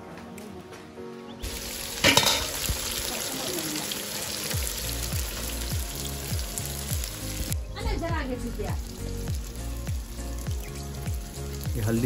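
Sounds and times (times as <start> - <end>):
onions sizzling in oil: 1.4 - 12.0
background music with steady beat: 4.5 - 12.0.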